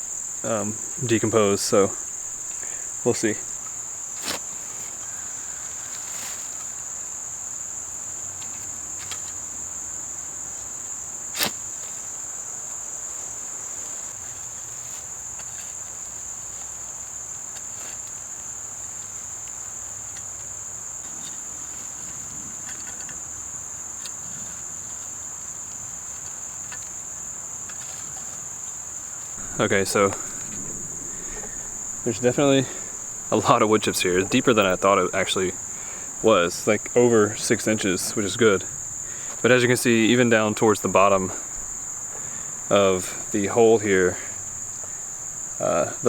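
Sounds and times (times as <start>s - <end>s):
insects chorus: 0.0s - 46.0s
sharp knocks: 29.4s - 46.0s.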